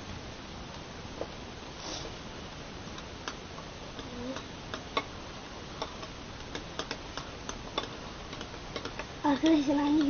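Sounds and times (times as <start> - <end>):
steady hiss: 0.0 - 10.0
spoon stirring slime in a pan: 3.2 - 10.0.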